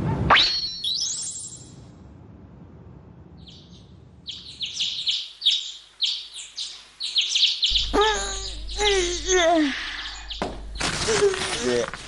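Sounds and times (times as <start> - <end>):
small birds chirping: 3.4 - 11.7.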